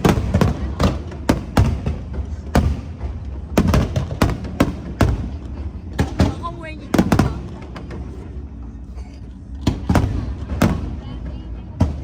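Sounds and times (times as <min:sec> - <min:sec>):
firework bangs: 0:00.0 - 0:08.0
distant fireworks rumble: 0:00.0 - 0:08.6, 0:09.6 - 0:12.0.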